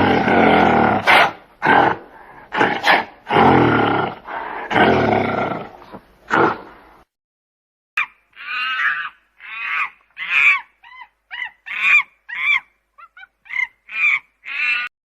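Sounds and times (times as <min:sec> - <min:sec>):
animal's deep calls: 0:08.0 - 0:14.9.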